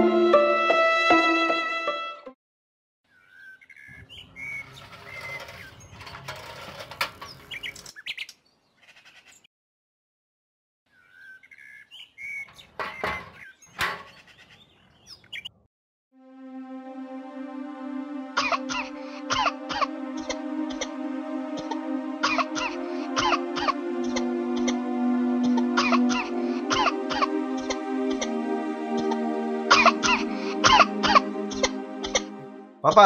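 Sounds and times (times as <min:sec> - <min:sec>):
violin music: 0:00.0 - 0:02.4, 0:16.2 - 0:32.9
birds chirping: 0:03.0 - 0:06.1, 0:07.2 - 0:09.5, 0:10.9 - 0:15.7.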